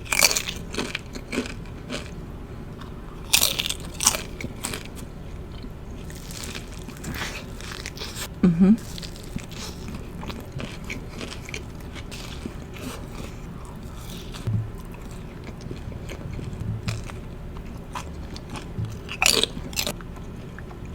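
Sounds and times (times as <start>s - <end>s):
chewing and biting sandwich: 0.0s - 20.9s.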